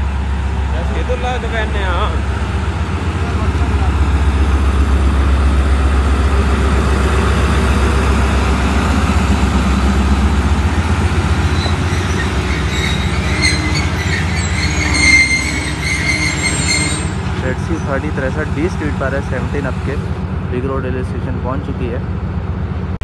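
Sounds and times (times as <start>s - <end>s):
train rumbling into platform: 0.0s - 23.0s
train brakes squealing: 11.3s - 18.2s.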